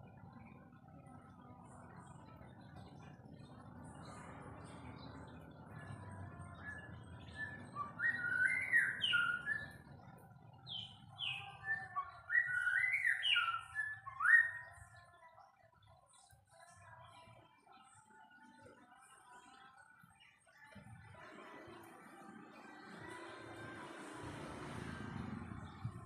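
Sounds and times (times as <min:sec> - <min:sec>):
bird singing whistled phrases: 0:06.6 - 0:09.8, 0:10.7 - 0:15.0.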